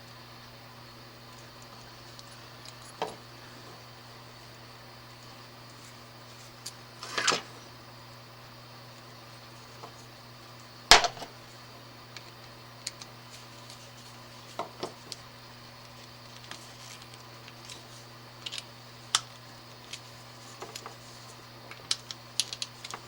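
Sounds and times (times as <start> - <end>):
steady low hum: 0.0 - 23.0
small parts clicking and tapping: 12.1 - 13.1, 18.4 - 21.1, 21.7 - 23.0.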